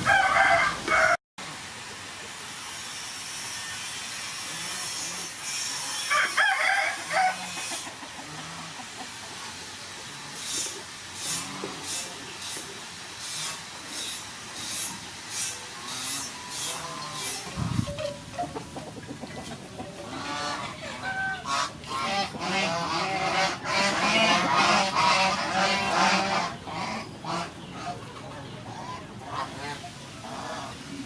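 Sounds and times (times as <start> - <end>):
rooster crowing: 0.0 - 1.2, 6.1 - 7.6.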